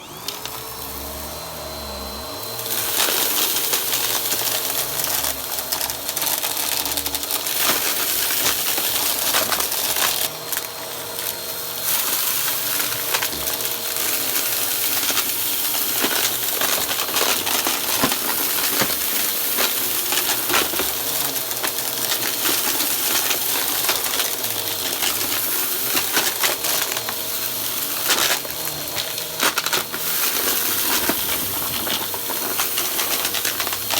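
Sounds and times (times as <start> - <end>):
vacuum cleaner running: 0.0 - 33.9
debris rattling through hose: 2.3 - 33.9.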